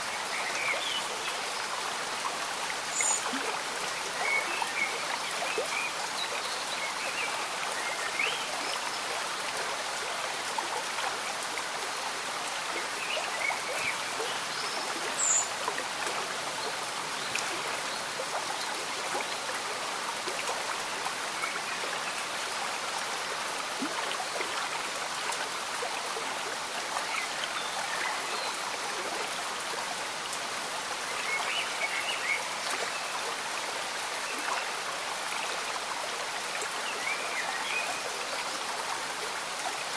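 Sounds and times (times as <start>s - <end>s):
light rain: 0.0s - 39.9s
stream bubbling and trickling: 0.0s - 39.9s.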